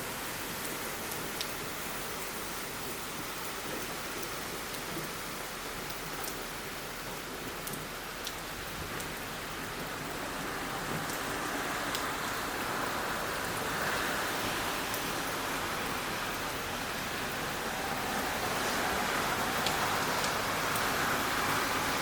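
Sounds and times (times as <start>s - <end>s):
heavy rain hissing: 6.5s - 22.0s.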